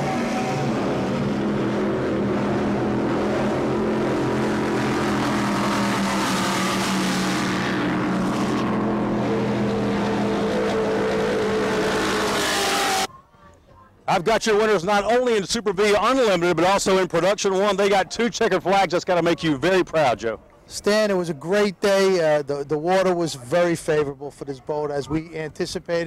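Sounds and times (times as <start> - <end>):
powerboat engines running: 0.0 - 12.1.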